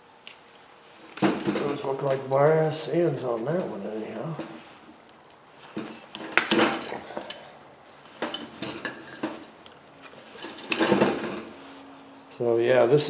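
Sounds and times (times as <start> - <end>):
small metal parts clinking: 5.6 - 7.5, 8.2 - 11.5.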